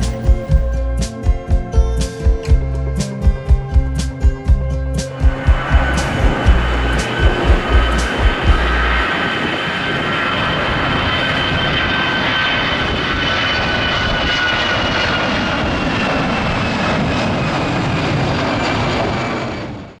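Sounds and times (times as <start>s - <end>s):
jet engines whining: 0.0s - 0.9s, 5.0s - 20.0s.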